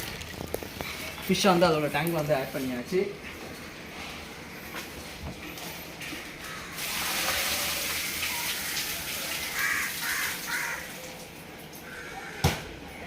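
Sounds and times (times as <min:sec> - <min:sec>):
water rushing in fish tank: 0:00.0 - 0:00.8, 0:06.7 - 0:11.4.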